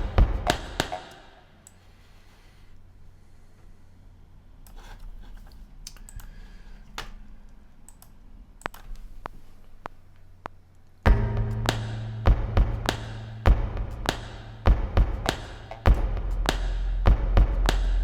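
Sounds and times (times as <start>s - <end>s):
loud percussive thuds: 0.0s - 1.4s, 11.1s - 18.0s.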